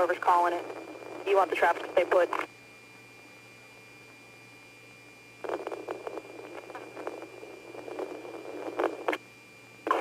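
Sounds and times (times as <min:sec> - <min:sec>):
garbled radio transmission: 0:00.0 - 0:02.5, 0:05.4 - 0:09.2
radio hiss: 0:00.0 - 0:02.5, 0:05.4 - 0:09.2
thin steady tone: 0:00.0 - 0:10.0.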